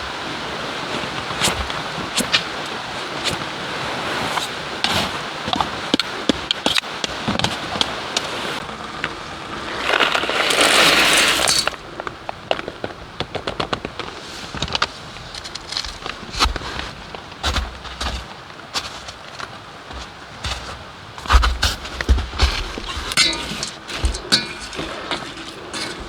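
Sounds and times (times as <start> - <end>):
wood fire crackling and popping: 21.2 - 26.0.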